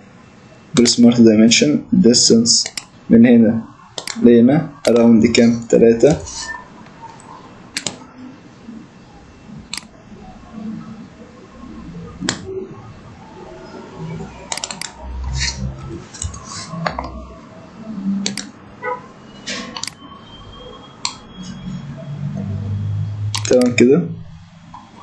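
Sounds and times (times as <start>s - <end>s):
computer mouse clicking: 2.6s - 2.9s, 4.0s - 4.2s, 4.8s - 5.1s, 6.1s - 8.0s, 9.7s - 9.9s, 14.5s - 15.6s, 18.2s - 18.5s, 19.8s - 20.0s, 23.3s - 23.8s.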